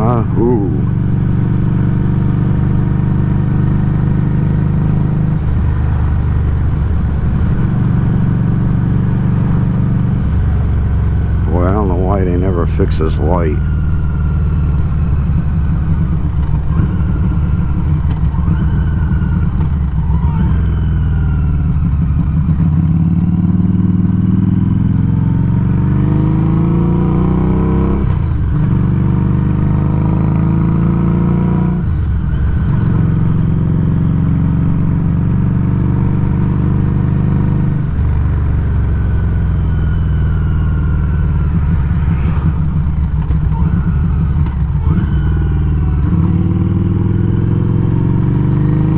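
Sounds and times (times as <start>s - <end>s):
motorcycle exhaust accelerating: 13.7s - 48.9s.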